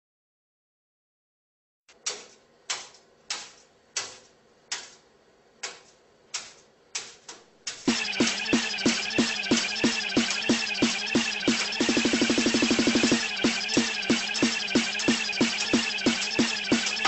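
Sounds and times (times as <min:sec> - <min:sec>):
electronic music with heavy beat: 0:07.8 - 0:17.0.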